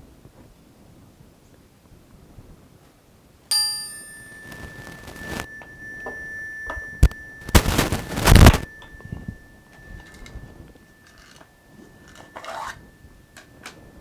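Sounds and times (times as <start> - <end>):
small bell ringing: 3.5 - 14.0.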